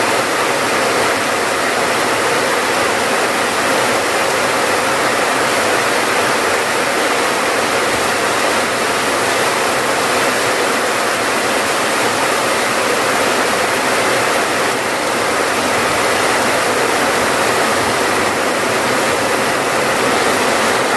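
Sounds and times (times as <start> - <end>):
steady rain: 0.0 - 20.9.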